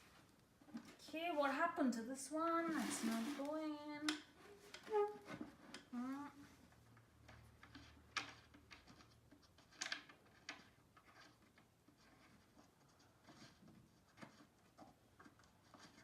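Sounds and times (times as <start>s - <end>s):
furniture parts clicking and scraping: 2.8s - 6.0s, 6.6s - 16.0s.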